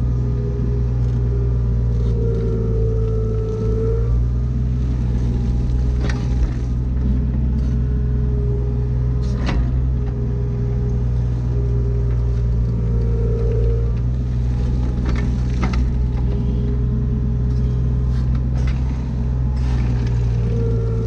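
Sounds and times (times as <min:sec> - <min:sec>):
excavator diesel engine running: 0:00.0 - 0:21.0
wavering hydraulic whine: 0:00.0 - 0:21.0.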